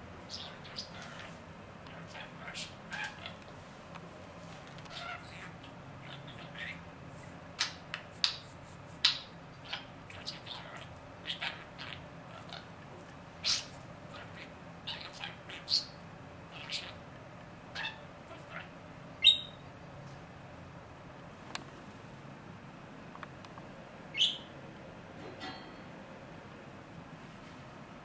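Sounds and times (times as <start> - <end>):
steady low hum: 0.0 - 28.0
parrot chirps and squawks: 0.3 - 3.5, 4.8 - 6.8, 9.0 - 12.8, 13.4 - 17.0, 17.7 - 19.6, 24.1 - 24.5.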